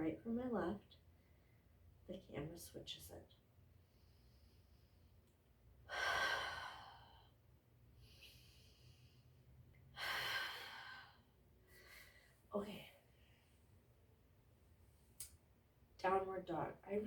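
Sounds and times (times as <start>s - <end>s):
woman breathing: 3.8s - 5.2s, 5.8s - 13.9s.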